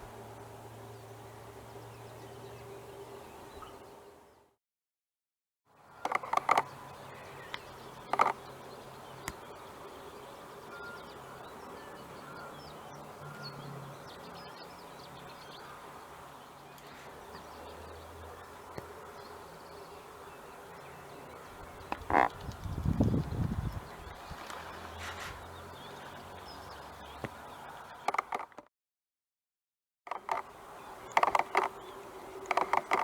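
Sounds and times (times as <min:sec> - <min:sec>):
faint bird calls: 0:14.4 - 0:28.5, 0:30.1 - 0:33.0.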